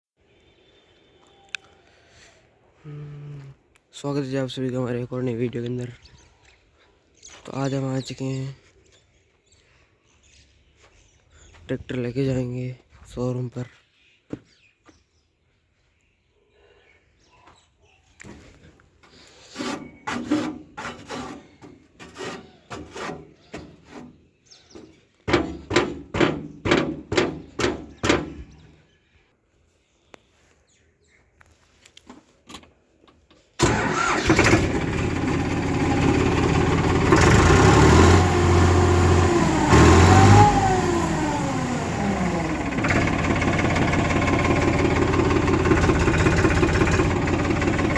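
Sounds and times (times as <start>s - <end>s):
tractor engine cranking: 33.6s - 47.9s
tractor engine revving: 33.6s - 47.9s.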